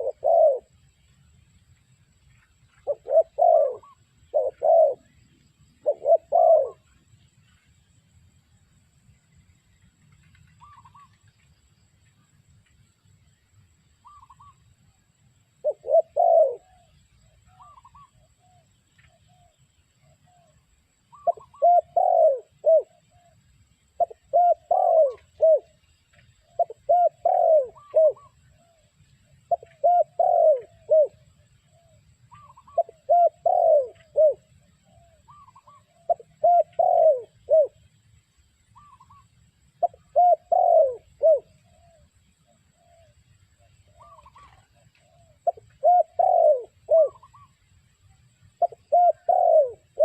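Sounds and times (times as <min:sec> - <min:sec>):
dove cooing: 0:00.0 - 0:00.8, 0:02.7 - 0:05.2, 0:05.8 - 0:07.0, 0:10.5 - 0:11.3, 0:14.0 - 0:14.6, 0:15.6 - 0:20.5, 0:21.1 - 0:23.4, 0:24.0 - 0:25.8, 0:26.4 - 0:37.8, 0:38.8 - 0:39.2, 0:39.8 - 0:47.6, 0:48.5 - 0:50.0.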